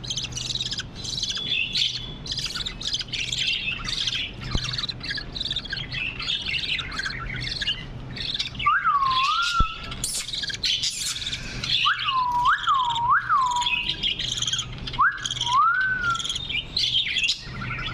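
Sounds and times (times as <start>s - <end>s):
budgerigars chattering and warbling: 0.0s - 17.9s
whistled bird notes: 0.0s - 17.9s.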